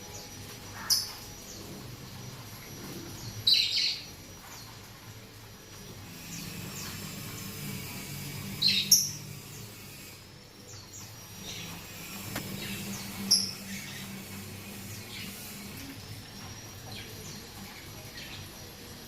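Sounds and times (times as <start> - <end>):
parrots chirping: 0.0 - 4.9, 6.0 - 16.0
steady low hum: 0.0 - 19.0.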